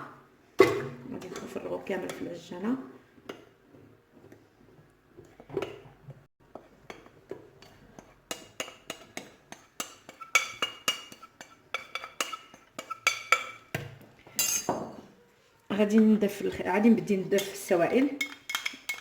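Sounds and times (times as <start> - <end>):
spoon tapping and scraping bowl: 6.5 - 15.0, 17.4 - 19.0.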